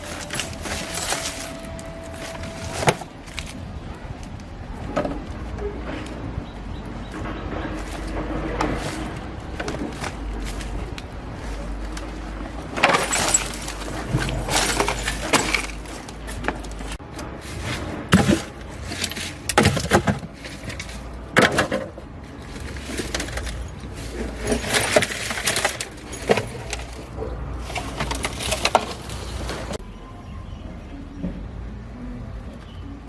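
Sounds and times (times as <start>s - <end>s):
hard objects clinking and clattering: 0.0s - 3.7s, 7.1s - 29.8s.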